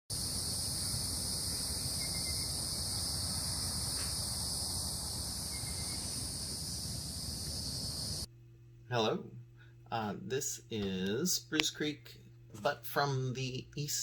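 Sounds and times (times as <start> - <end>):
insects buzzing: 0.1 - 8.3.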